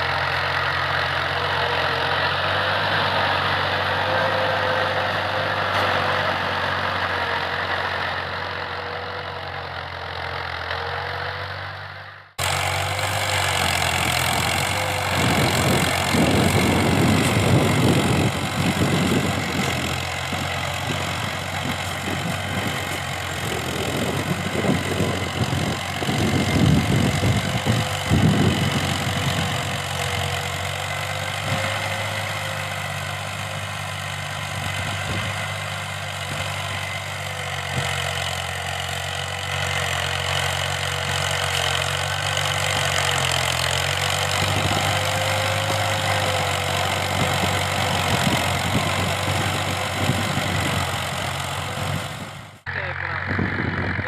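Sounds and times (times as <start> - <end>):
tractor diesel engine running: 0.0 - 54.0
rough uneven rumbling: 12.4 - 54.0.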